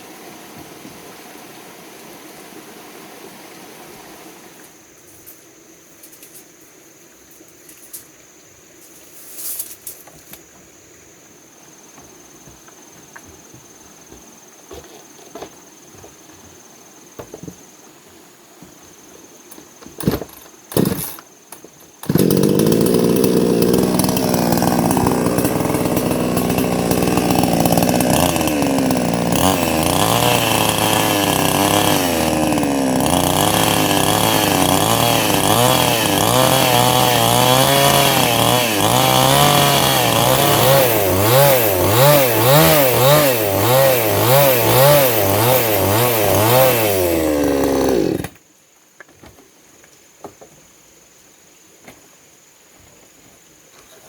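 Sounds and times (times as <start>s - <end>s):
chainsaw running: 20.7s - 21.2s, 22.0s - 48.4s.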